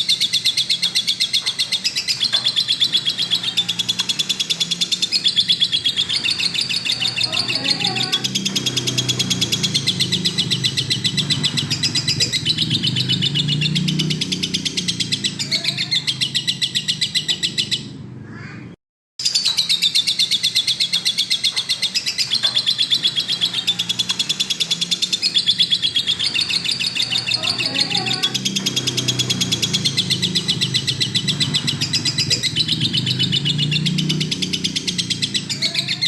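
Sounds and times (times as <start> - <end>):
lovebird chattering trill: 0.0 - 17.9, 19.2 - 36.0.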